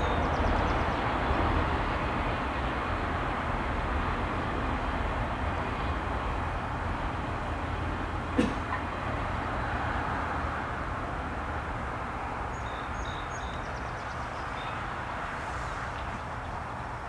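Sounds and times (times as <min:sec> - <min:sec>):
passing train rumble: 0:00.0 - 0:17.0
small bird chirping: 0:12.5 - 0:14.8.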